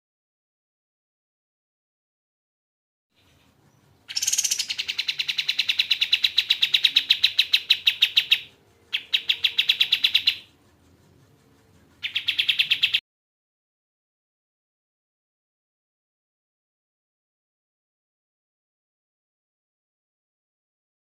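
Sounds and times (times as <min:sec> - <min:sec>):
bird singing fast trill: 0:03.2 - 0:10.5, 0:12.0 - 0:13.0.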